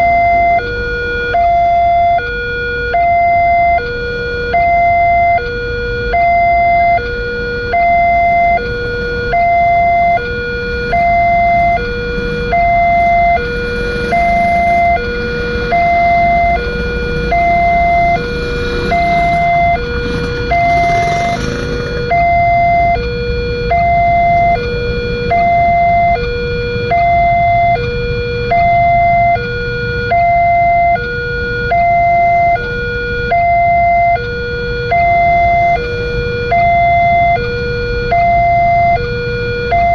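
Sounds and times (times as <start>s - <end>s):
two-tone crossing alarm: 0.0s - 39.9s
low rumble: 7.0s - 29.3s.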